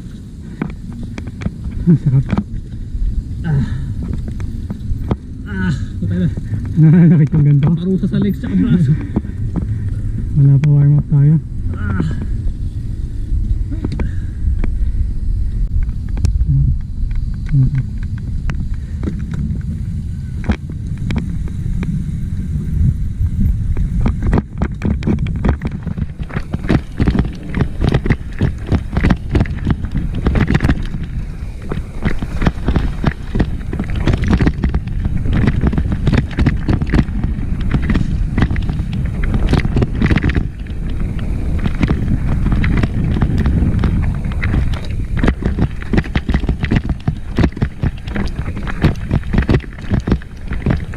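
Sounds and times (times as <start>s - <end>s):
microphone handling noise: 0.0s - 12.8s, 15.6s - 50.9s
wind rumble on microphone: 0.0s - 50.9s
bike clattering over rocks: 23.8s - 50.9s.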